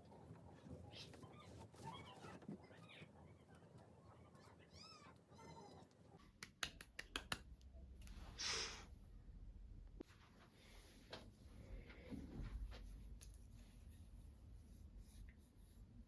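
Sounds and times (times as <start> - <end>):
cat meowing: 4.4 - 6.0.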